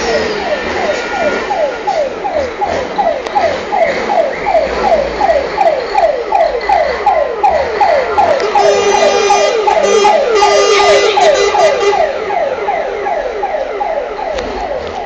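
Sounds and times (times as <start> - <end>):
siren sweeping: 0.0 - 15.0
long horn blast: 8.4 - 12.1.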